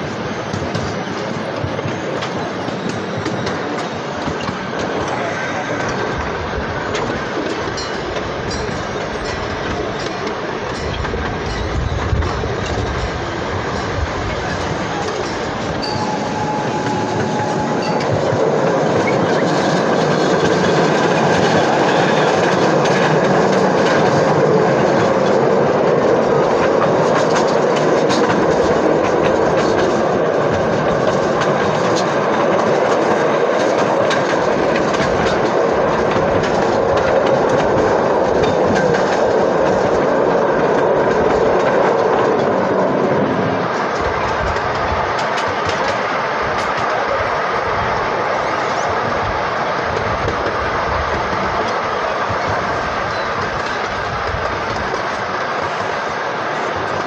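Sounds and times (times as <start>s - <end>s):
wheels clacking over rail joints: 0.2s - 57.0s
freight car rumble and rattle: 10.8s - 15.9s.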